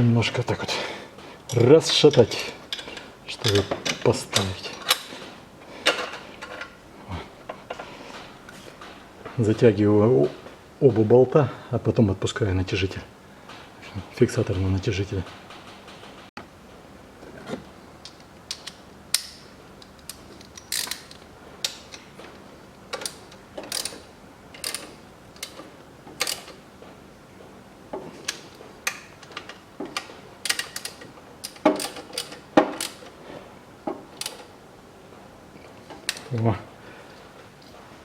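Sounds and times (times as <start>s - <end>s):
ratchet wrench clicking: 23.0s - 25.6s, 26.2s - 26.5s.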